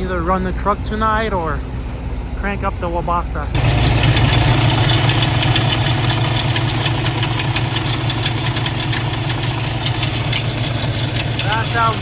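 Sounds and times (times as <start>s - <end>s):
diesel engine idling: 0.1s - 12.0s
rapid knocking inside engine: 3.6s - 12.0s.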